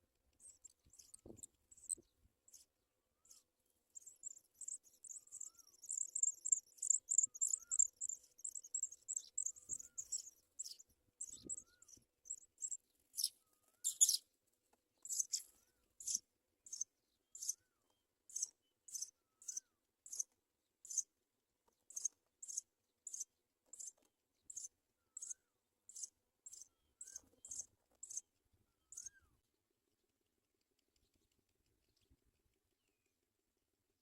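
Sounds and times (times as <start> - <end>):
baby birds chirping: 0.4 - 14.3, 15.0 - 17.7, 18.3 - 21.1, 21.8 - 29.2.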